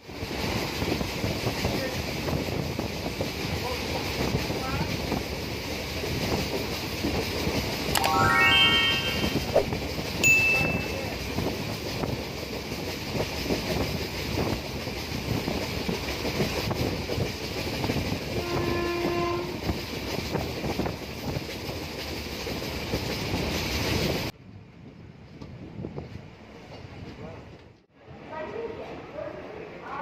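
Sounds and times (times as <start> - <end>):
train wheels on rail and wind: 0.0 - 8.0, 9.2 - 30.0
train horn: 18.4 - 19.7.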